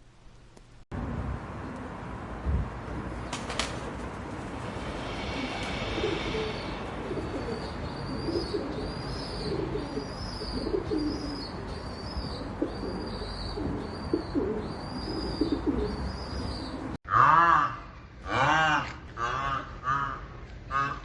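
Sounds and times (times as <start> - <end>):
bird cooing: 3.0 - 17.0.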